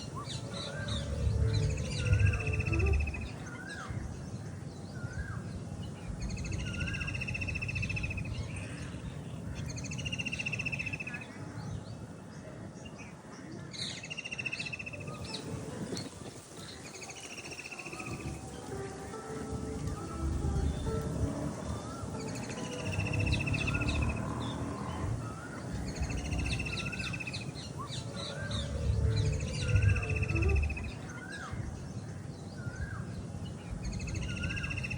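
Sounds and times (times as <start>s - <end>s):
low background rumble: 0.0s - 10.0s, 18.1s - 34.9s
birds chirping: 0.0s - 34.9s.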